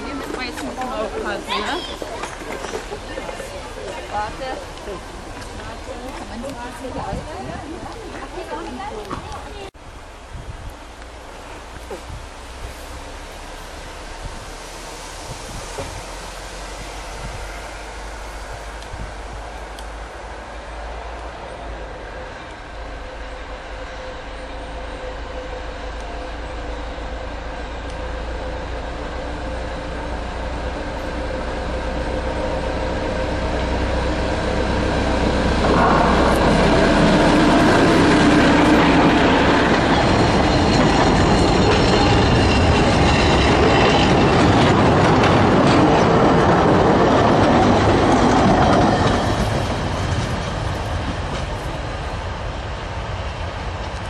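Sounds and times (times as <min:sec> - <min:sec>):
locomotive running: 0:00.0 - 0:54.0
wheels clattering over rails: 0:30.7 - 0:52.4.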